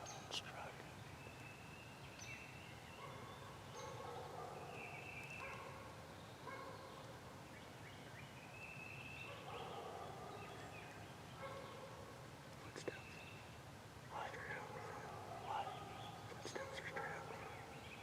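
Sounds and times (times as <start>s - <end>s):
faint turkey calls: 14.1s - 18.0s.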